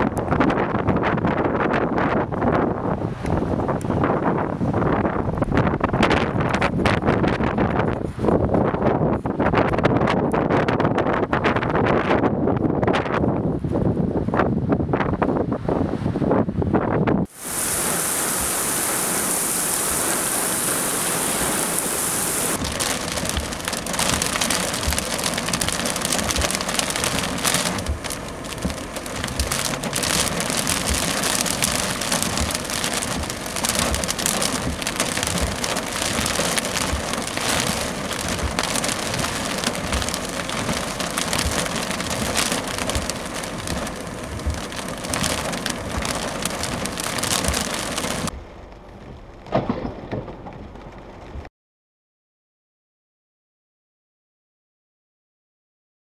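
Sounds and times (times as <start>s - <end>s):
heavy rain on a car: 17.3s - 51.5s.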